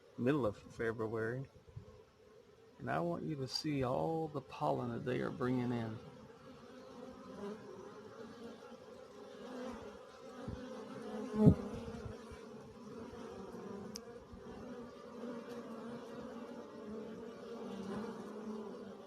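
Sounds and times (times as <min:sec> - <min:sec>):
honeybees buzzing: 0:00.0 - 0:19.0
loud bee buzz: 0:04.7 - 0:19.0.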